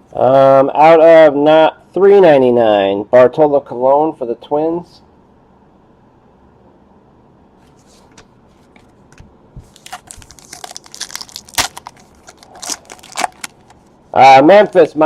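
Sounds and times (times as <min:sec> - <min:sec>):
wrapper crinkling and crackling: 0:09.6 - 0:13.9
sharp wrapper crack: 0:09.7 - 0:13.9.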